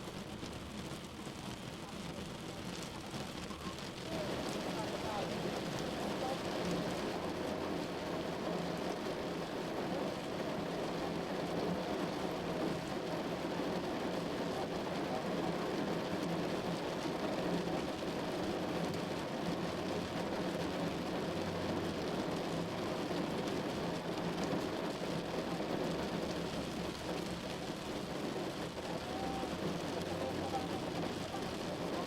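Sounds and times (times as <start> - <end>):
heavy rain on a car: 0.0 - 32.0.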